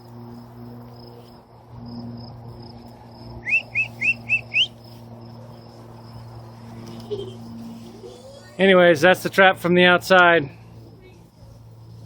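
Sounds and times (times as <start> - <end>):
faint high insect trill: 0.0 - 9.0, 10.4 - 12.0
steady low hum: 0.0 - 12.0
small bird chirping: 3.4 - 5.0.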